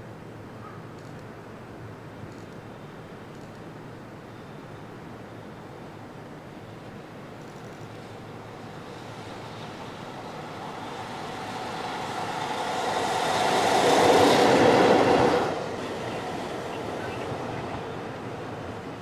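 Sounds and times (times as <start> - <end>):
train passing at speed: 7.8 - 19.0.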